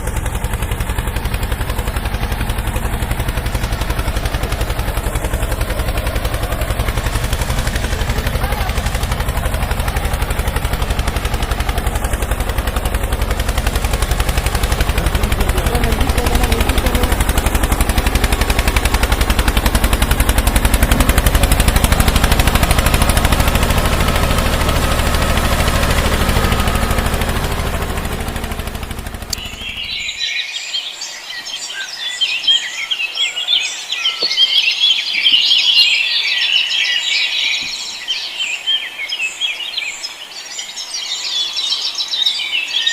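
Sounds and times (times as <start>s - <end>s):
vehicle engine running: 0.0s - 30.4s
birds chirping: 0.0s - 42.9s.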